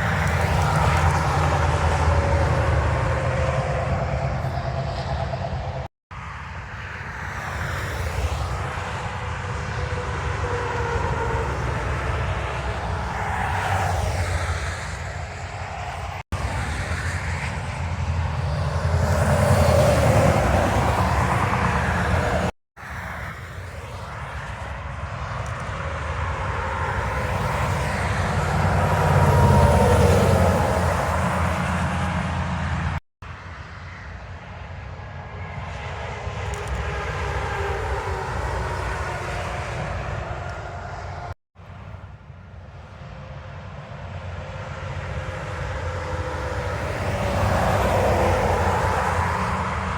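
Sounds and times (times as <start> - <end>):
trucks passing by: 0.0 - 49.9.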